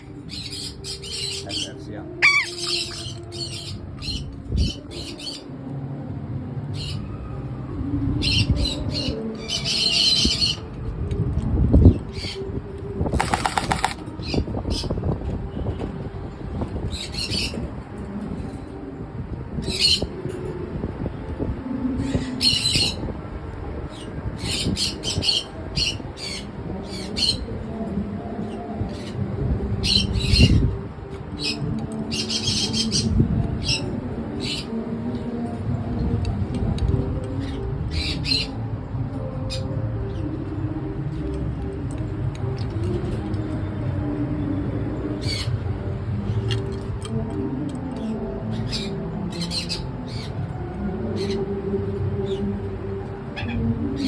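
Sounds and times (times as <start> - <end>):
parrot screeching squawks: 2.2 - 3.0.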